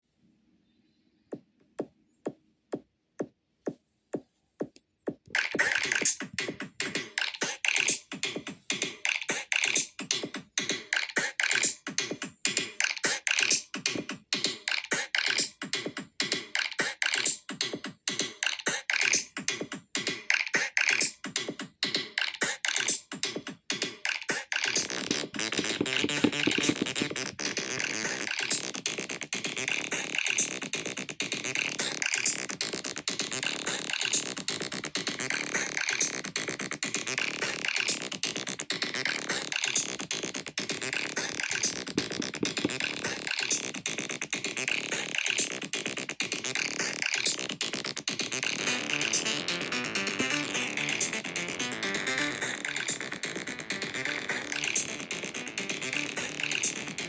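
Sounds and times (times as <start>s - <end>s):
kick drum beat: 1.8s - 7.2s, 24.8s - 28.2s, 40.7s - 43.3s
synthesizer pattern: 24.7s - 29.0s, 48.4s - 57.0s.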